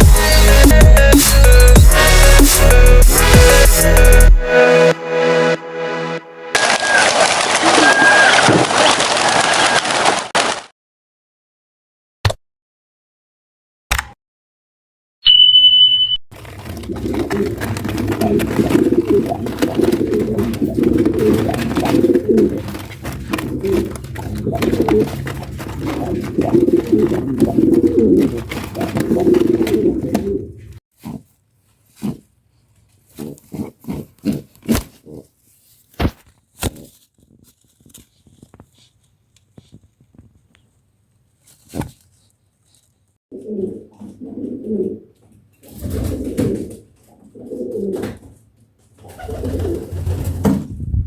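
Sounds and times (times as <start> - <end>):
pigeons cooing: 16.7 - 30.7, 43.3 - 48.2, 49.0 - 50.3.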